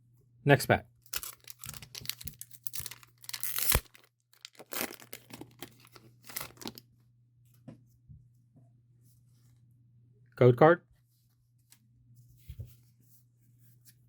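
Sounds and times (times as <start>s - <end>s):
foil wrapper tearing and crinkling: 1.1s - 6.8s.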